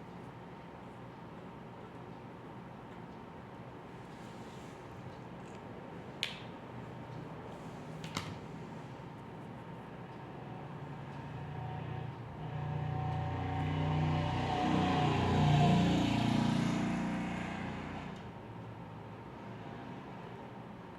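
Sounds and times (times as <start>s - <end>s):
motor vehicle passing by: 10.9s - 18.3s.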